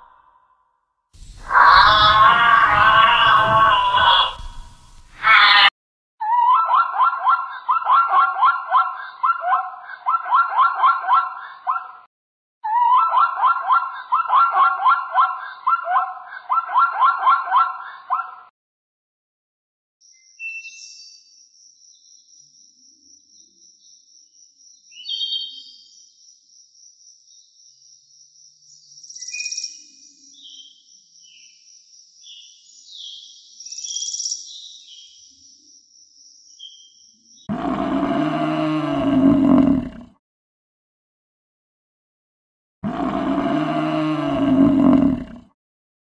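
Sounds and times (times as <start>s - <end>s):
large animal roaring: 1.2s - 5.7s, 37.5s - 40.2s, 42.8s - 45.5s.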